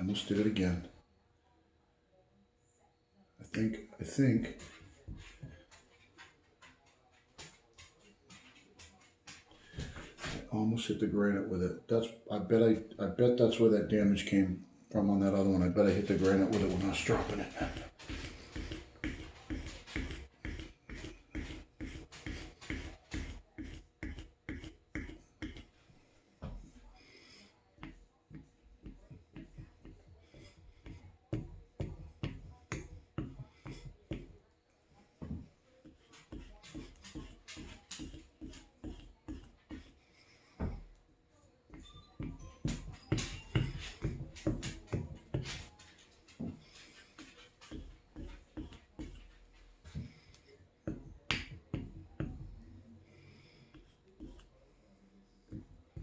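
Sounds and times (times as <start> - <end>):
plane iron stropped on leather: 16.0 - 25.8, 35.8 - 40.8.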